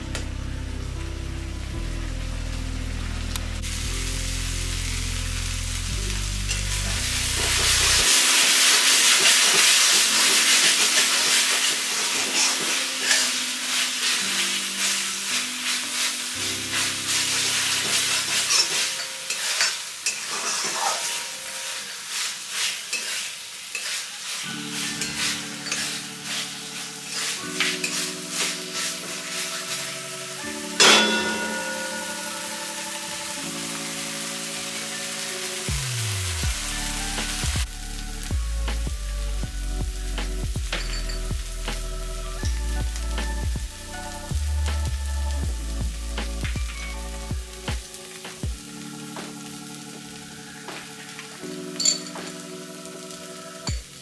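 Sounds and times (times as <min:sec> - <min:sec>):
paste sizzling in a pan: 0:03.4 - 0:54.0
spatula scraping a pan: 0:06.5 - 0:32.4.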